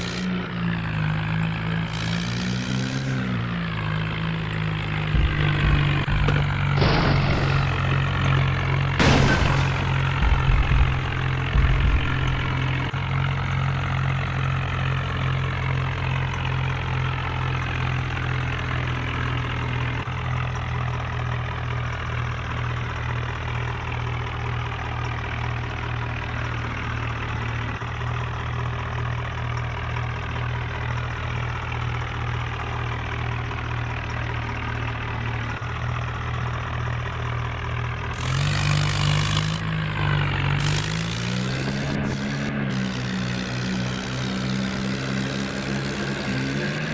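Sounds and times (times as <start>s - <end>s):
tractor engine running: 0.0s - 46.9s
low bumps: 5.0s - 13.0s.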